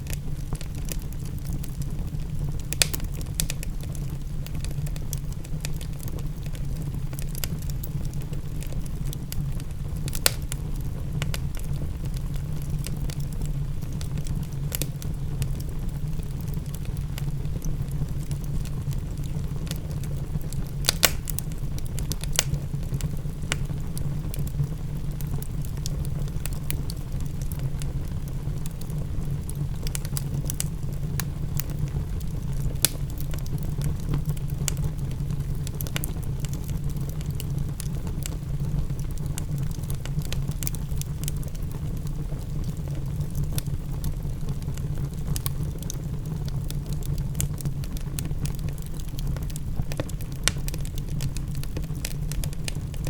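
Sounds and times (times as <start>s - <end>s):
faint rain pattering: 0.0s - 53.0s
low fire rumble: 0.0s - 53.0s
wood fire crackling and popping: 0.0s - 53.0s.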